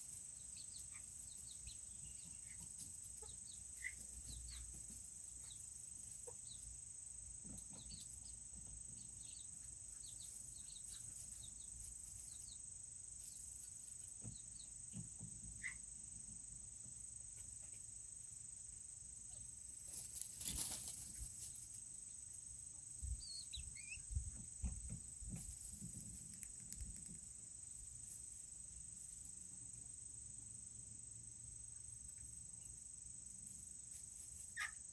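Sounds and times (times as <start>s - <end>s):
steady high-pitched hiss: 0.0s - 34.9s
chickens clucking and peeping: 0.1s - 18.0s, 22.7s - 27.2s
brief rustle: 19.8s - 21.6s.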